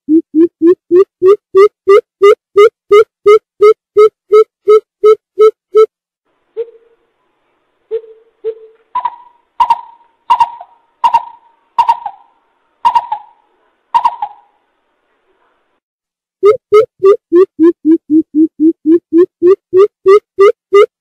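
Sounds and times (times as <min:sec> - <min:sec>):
bird calling with hollow hoots: 0:07.9 - 0:13.4, 0:14.0 - 0:14.5.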